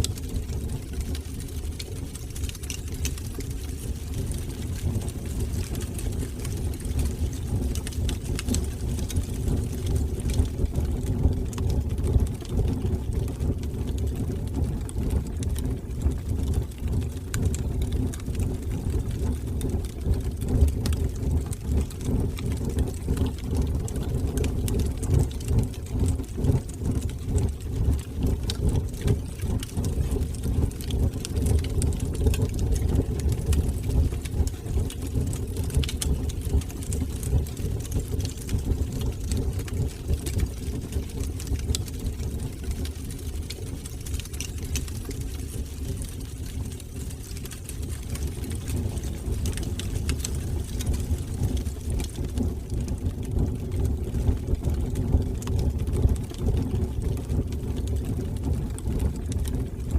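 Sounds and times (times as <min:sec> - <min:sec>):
fire crackling in fireplace: 0:00.0 - 0:59.9.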